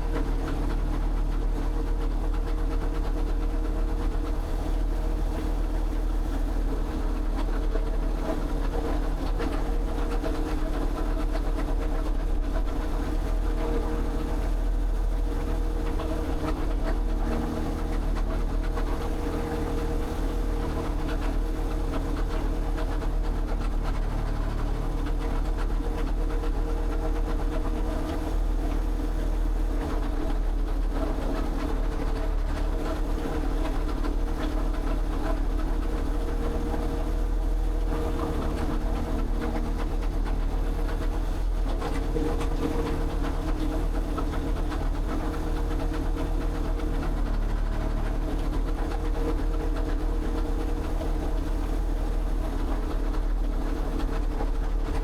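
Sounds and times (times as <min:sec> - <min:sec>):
engine droning steadily: 0:00.0 - 0:55.0.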